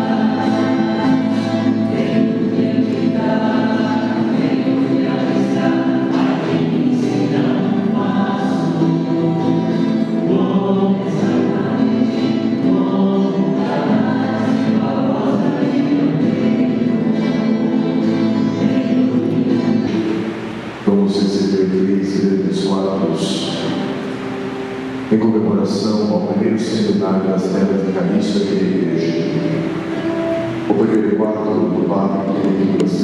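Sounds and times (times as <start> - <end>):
choir singing a hymn: 0.0 - 25.2.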